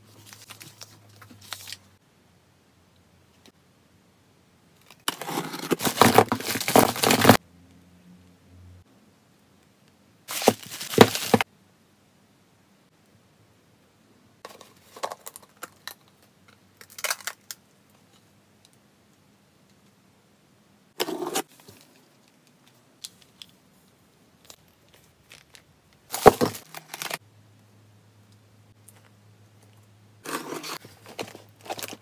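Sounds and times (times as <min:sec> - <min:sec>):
small hard objects clattering: 0:05.0 - 0:07.4, 0:10.3 - 0:11.4, 0:24.4 - 0:27.2.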